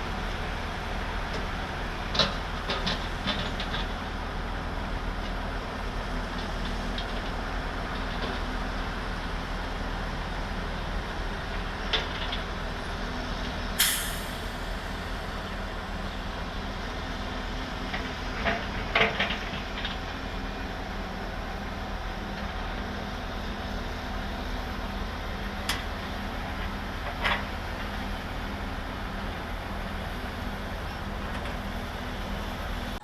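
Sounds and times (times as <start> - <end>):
vehicle engine rumble: 0.0 - 33.0
short sharp hiss: 13.8 - 16.0.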